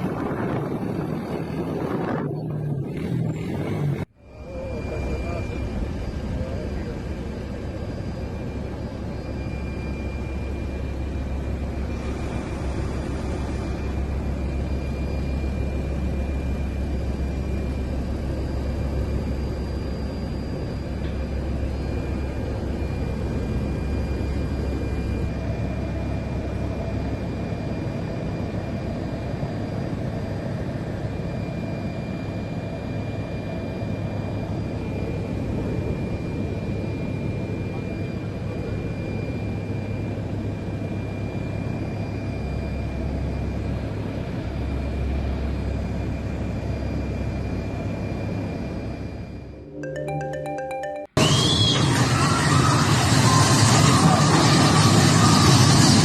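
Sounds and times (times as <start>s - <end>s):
high-pitched whines: 0.1s - 27.9s.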